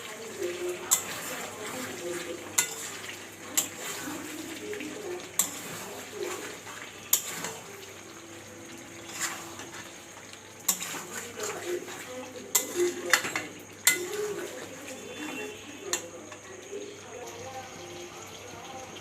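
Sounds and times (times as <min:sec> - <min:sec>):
metal spoon stirring in pot: 0:00.0 - 0:17.0
spoon clinking against pot: 0:00.8 - 0:01.4, 0:02.5 - 0:04.0, 0:05.3 - 0:05.8, 0:07.1 - 0:07.7, 0:10.6 - 0:16.4.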